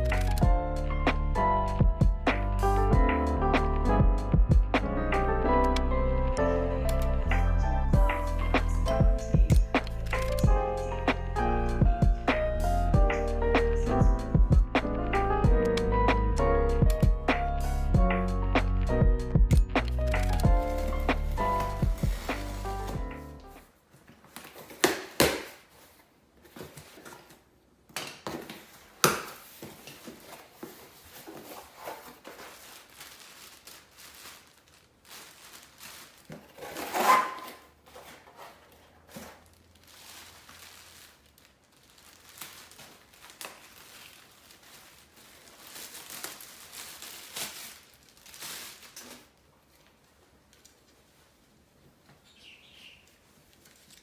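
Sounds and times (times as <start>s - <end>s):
objects being handled: 8.2s - 10.5s, 19.8s - 52.4s, 53.0s - 54.0s.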